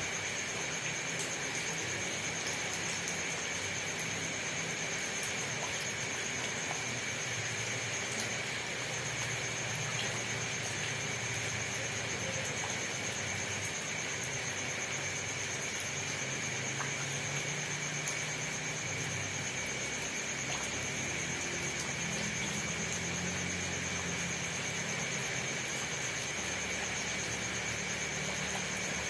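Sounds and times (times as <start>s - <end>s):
steady rain hiss: 0.0s - 29.0s.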